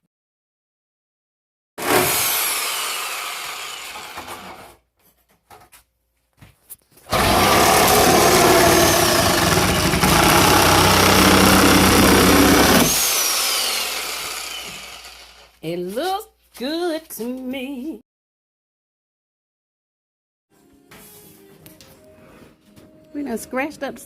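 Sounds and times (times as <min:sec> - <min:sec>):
power tool motor running: 0:01.8 - 0:04.6, 0:07.1 - 0:15.5.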